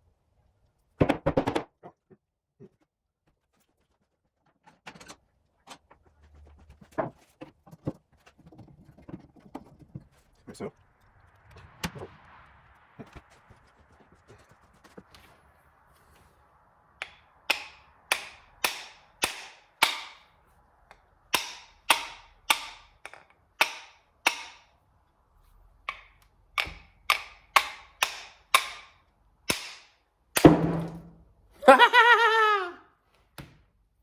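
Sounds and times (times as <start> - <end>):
loud knock: 30.4 - 31.2.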